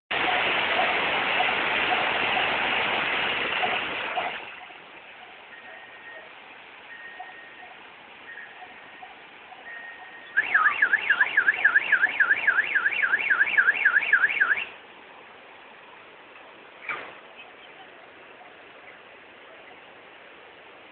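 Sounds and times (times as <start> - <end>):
loud rushing noise: 0.1 - 4.5
car alarm warbling: 3.6 - 14.8.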